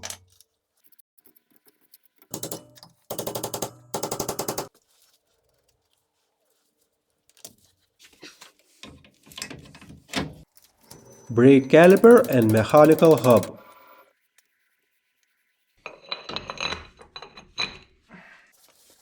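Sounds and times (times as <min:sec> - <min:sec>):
wrench rapid clicking: 0:02.3 - 0:04.7, 0:11.0 - 0:13.8.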